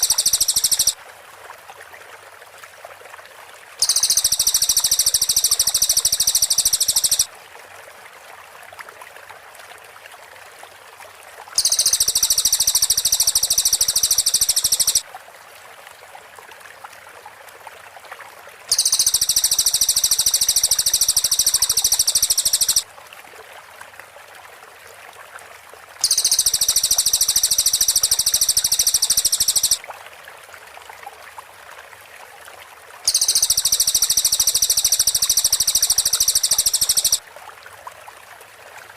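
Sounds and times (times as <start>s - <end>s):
songbird high-pitched trill: 0.0s - 1.0s, 3.8s - 7.3s, 11.6s - 15.0s, 18.7s - 22.8s, 26.0s - 29.8s, 33.1s - 37.2s.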